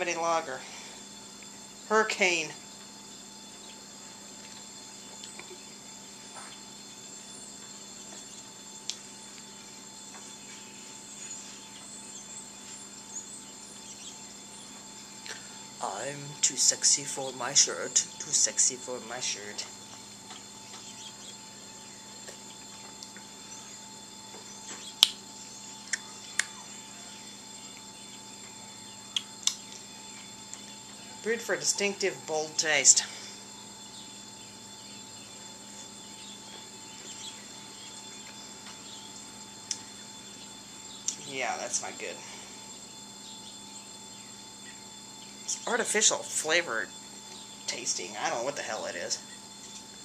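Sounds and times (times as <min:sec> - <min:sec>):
background hum: 0:00.0 - 0:50.0
faint high whine: 0:00.0 - 0:50.0
faint ticks: 0:07.6 - 0:09.5.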